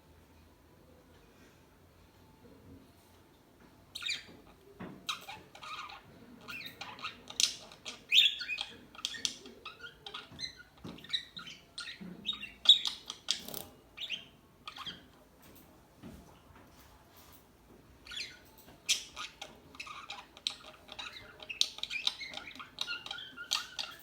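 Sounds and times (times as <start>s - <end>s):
parakeets chirping and squawking: 4.0s - 4.4s, 5.0s - 15.1s, 18.0s - 24.0s.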